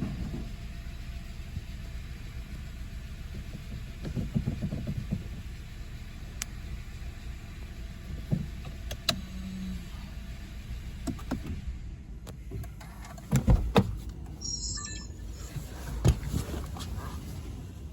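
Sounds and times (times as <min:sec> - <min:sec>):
steady low rumble: 0:10.0 - 0:13.0
short high chirping: 0:14.4 - 0:15.5.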